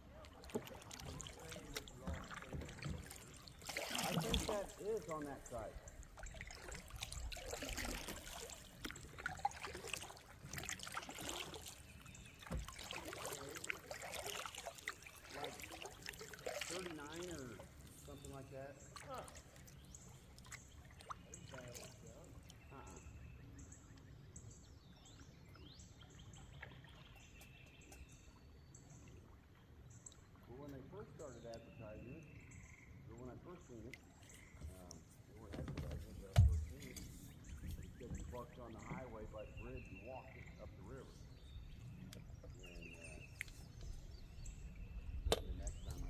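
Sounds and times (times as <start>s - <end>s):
low river rumble: 0.0s - 23.6s, 33.1s - 34.0s, 34.8s - 46.0s
water trickling and dripping: 0.0s - 46.0s.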